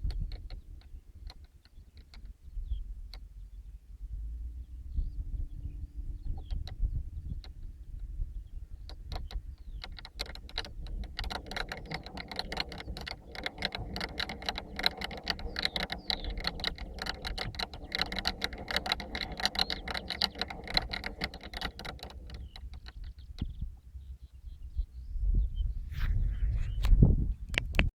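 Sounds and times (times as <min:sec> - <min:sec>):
rapid mechanical clicking and rattling: 0:00.0 - 0:02.4, 0:08.8 - 0:23.6.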